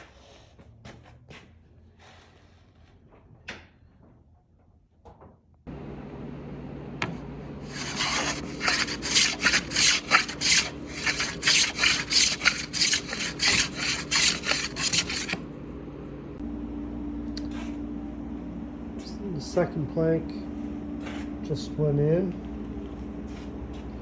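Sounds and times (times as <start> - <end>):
hand tool rasping on wood: 7.6 - 15.4.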